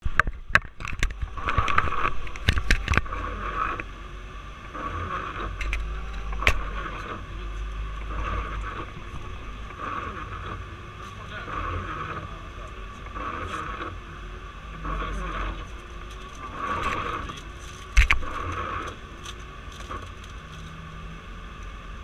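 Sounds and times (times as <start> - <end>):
sharp clicks and knocks: 0.0 - 3.9, 5.4 - 7.2, 15.7 - 20.8
tractor engine rumbling: 0.0 - 22.0.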